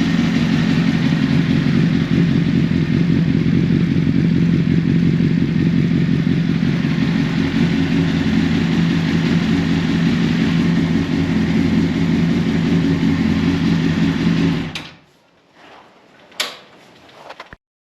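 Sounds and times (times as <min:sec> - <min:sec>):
motorcycle engine idling: 0:00.0 - 0:14.8.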